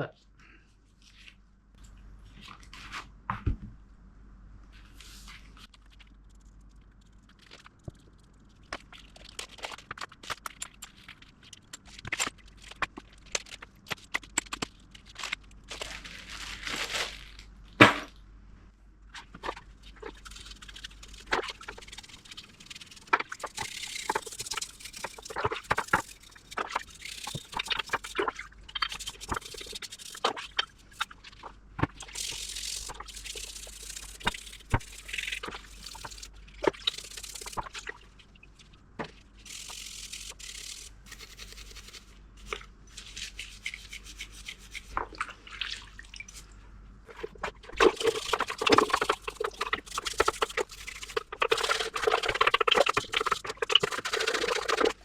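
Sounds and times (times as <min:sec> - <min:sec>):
plastic bags crinkling: 0:14.9 - 0:17.5.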